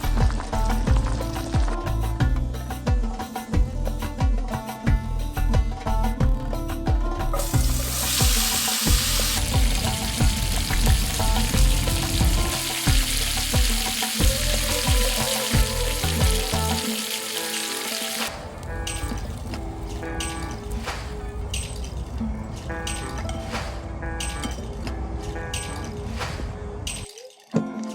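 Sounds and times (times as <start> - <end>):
background music: 0.0 - 27.9
steak sizzling on griddle: 7.4 - 18.3.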